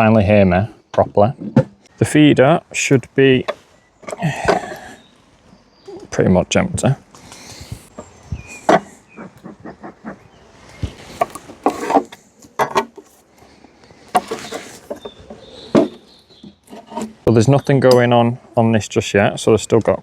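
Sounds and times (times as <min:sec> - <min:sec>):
beehive parts knocking and scraping: 0:03.4 - 0:04.9, 0:07.1 - 0:18.1.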